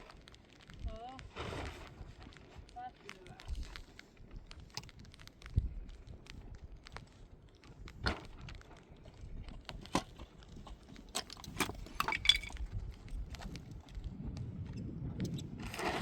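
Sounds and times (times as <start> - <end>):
clinks and knocks: 11.1 - 12.6.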